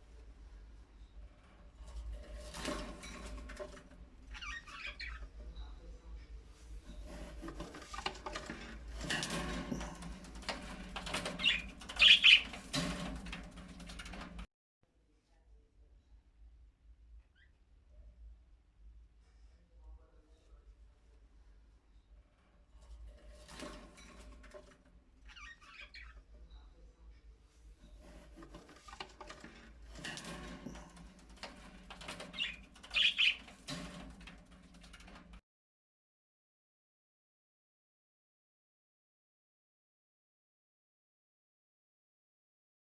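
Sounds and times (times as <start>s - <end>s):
rustling and wing movement: 0.0s - 14.5s, 27.5s - 35.4s.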